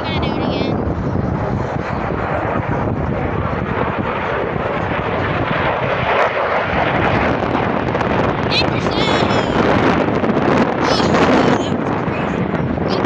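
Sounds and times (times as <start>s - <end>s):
airplane engine rushing: 0.0s - 13.0s.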